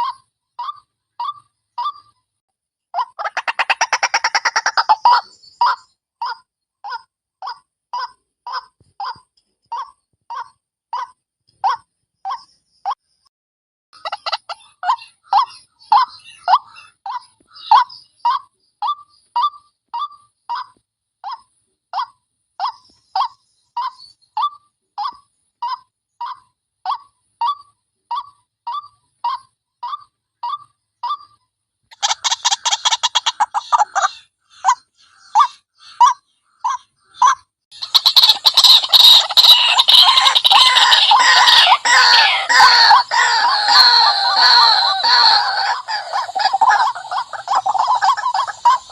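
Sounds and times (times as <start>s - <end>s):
chorus of harsh bird calls: 0.0s - 2.3s, 3.0s - 10.6s, 14.0s - 48.9s
harsh bird calls: 3.2s - 6.4s, 14.0s - 21.4s, 22.6s - 48.9s.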